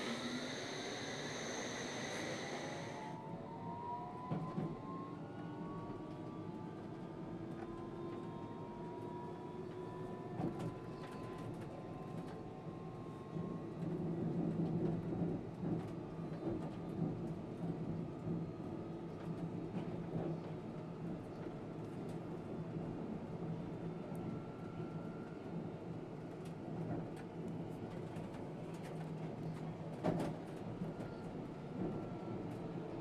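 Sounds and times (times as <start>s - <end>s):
traction motors whining: 0.0s - 3.2s.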